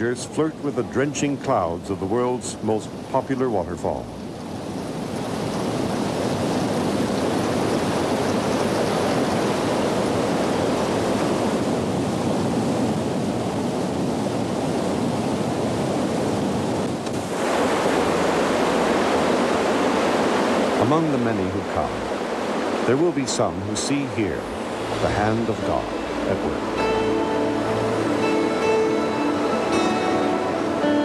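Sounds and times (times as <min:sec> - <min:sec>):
waterfall rushing: 0:17.1 - 0:31.0.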